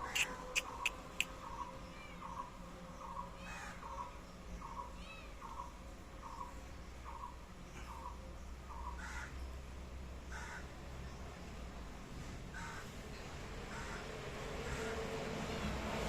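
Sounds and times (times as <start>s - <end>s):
crow cawing: 3.4s - 4.0s, 8.8s - 9.3s, 10.3s - 10.7s, 12.6s - 12.9s, 13.7s - 15.0s.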